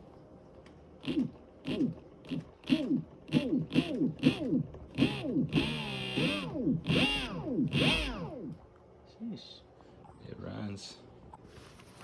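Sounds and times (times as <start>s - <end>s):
electric motor whining: 1.0s - 8.6s.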